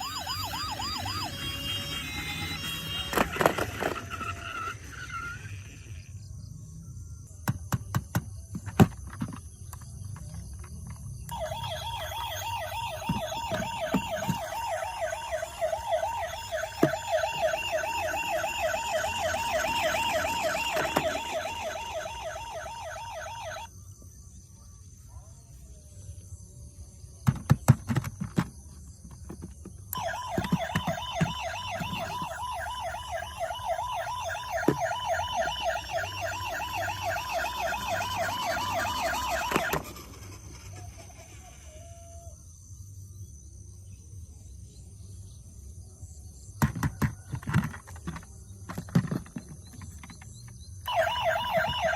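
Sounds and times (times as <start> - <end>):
toy electronic siren warbling: 0.0 - 6.0, 11.3 - 23.7, 29.9 - 42.3, 50.8 - 51.9.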